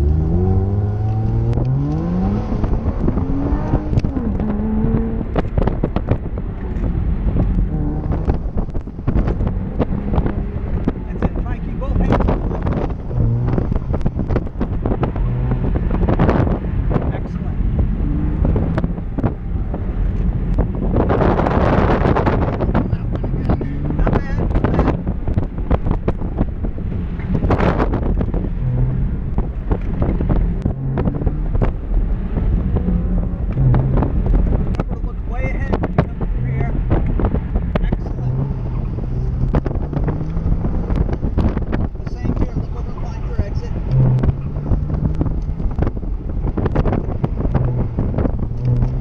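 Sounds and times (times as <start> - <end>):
car engine revving: 0.0 - 49.0
wind buffeting on microphone: 0.0 - 49.0.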